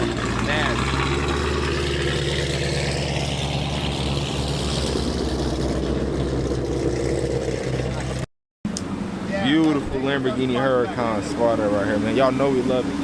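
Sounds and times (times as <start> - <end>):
car engine low rumble: 0.0 - 13.0
rushing noise rising in pitch: 0.8 - 8.2.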